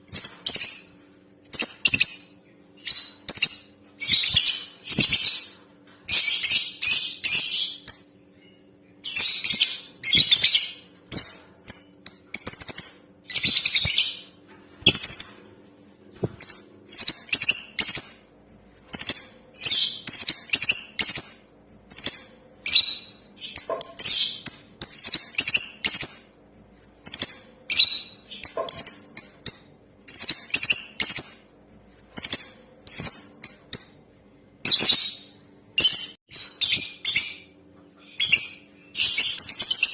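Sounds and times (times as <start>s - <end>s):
lovebird chattering chirps: 0.1s - 8.3s, 9.0s - 14.3s, 16.4s - 26.4s, 27.0s - 31.6s.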